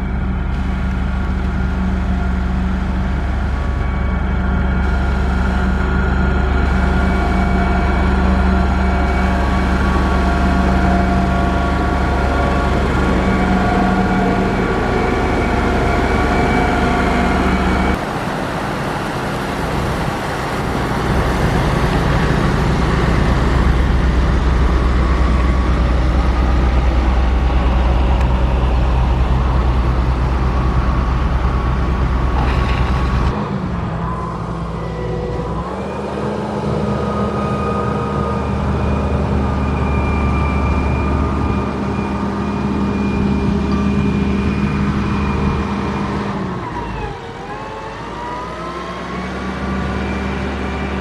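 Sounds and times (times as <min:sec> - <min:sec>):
grader diesel engine running: 0:00.0 - 0:51.0.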